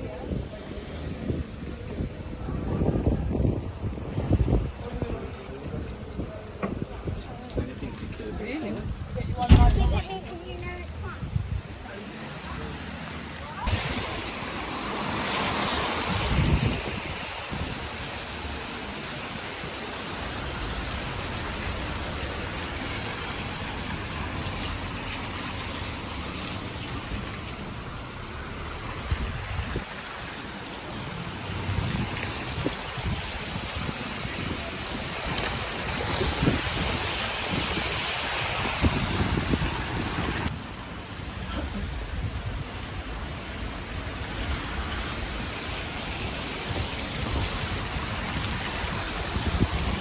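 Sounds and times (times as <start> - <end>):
wind buffeting microphone: 0.0 - 11.8, 13.6 - 40.7, 41.8 - 50.0
steady rushing outdoor noise: 0.0 - 50.0.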